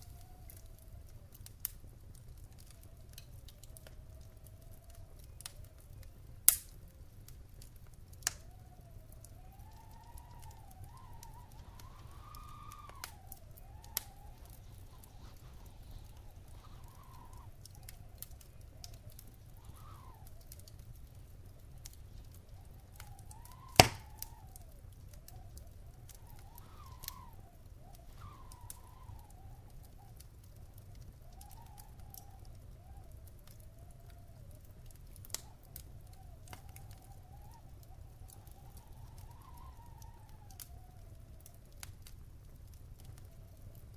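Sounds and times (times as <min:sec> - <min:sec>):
wood fire crackling: 0:00.0 - 0:43.9
faint wavering whistle: 0:08.4 - 0:34.6, 0:35.4 - 0:41.4.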